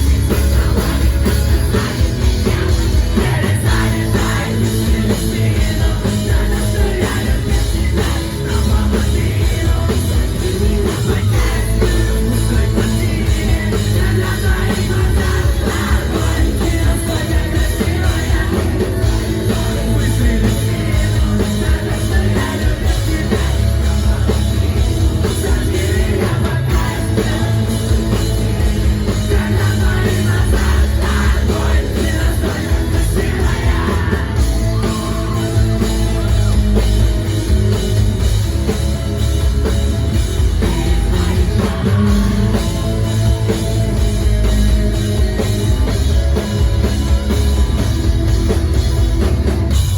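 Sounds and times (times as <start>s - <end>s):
person singing: 0.0s - 37.0s, 40.4s - 43.7s
rock band playing live: 0.0s - 49.9s.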